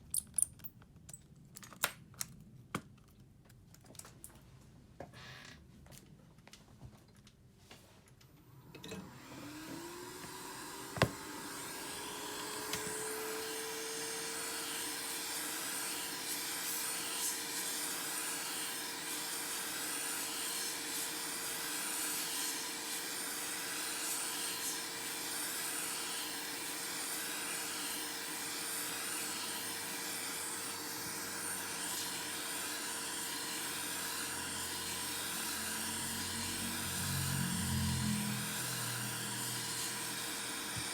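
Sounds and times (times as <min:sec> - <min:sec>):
small electric motor whining: 0:08.7 - 0:40.9.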